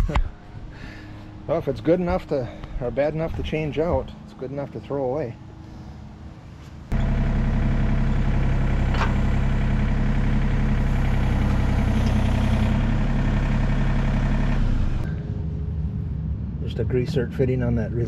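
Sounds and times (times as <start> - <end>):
motor running: 6.9 - 15.1.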